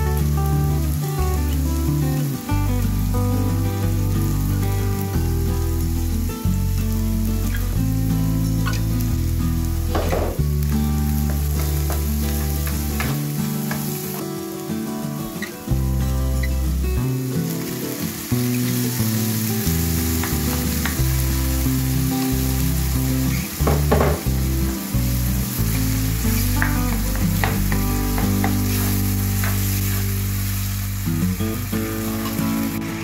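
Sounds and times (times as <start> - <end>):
low background music: 0.0 - 33.0
tomatoes sizzling in a wok: 0.0 - 33.0
utensil scraping a wok: 27.5 - 30.3.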